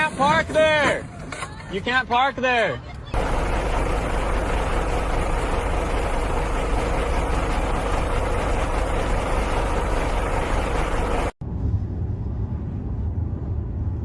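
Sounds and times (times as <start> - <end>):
heavy engine droning: 3.2 - 11.4.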